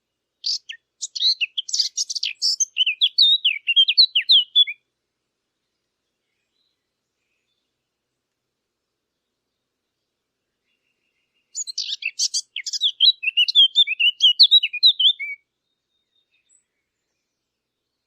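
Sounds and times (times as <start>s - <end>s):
warbler singing: 0.0s - 4.8s, 9.2s - 18.0s.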